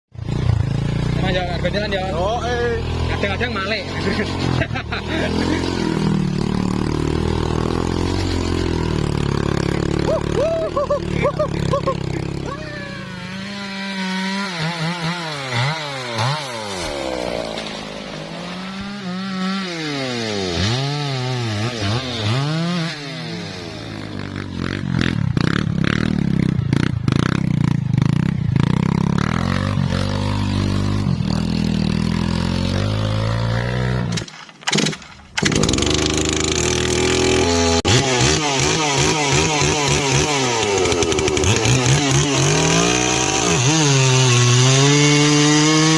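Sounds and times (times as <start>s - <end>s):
chainsaw revving and cutting: 0.2s - 45.9s.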